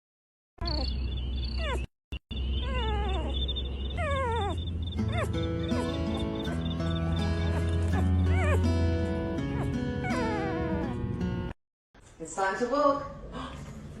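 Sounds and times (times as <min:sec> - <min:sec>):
pet crying: 0:00.6 - 0:00.9, 0:01.6 - 0:01.9, 0:02.5 - 0:11.2
music with stepped notes: 0:05.3 - 0:11.5.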